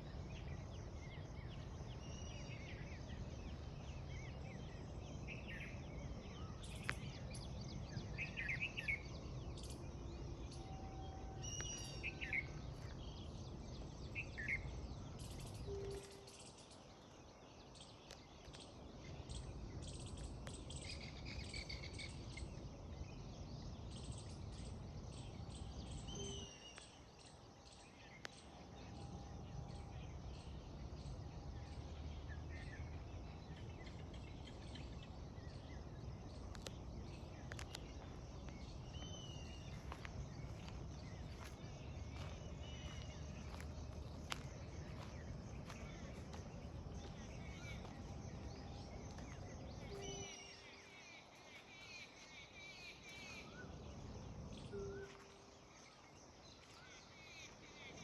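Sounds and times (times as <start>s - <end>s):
birds chirping: 0.0s - 58.0s
steady low rumble: 28.8s - 50.4s
insects clicking: 36.3s - 49.6s.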